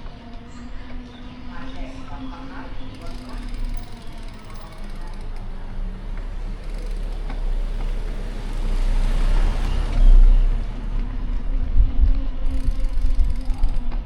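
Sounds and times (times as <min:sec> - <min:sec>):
city street traffic rumble: 0:00.0 - 0:14.0
motor vehicle passing close: 0:03.0 - 0:13.7.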